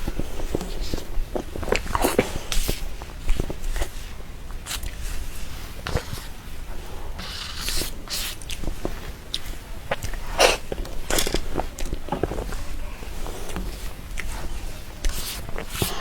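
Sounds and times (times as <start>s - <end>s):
breathy bursts: 15.7s - 16.0s.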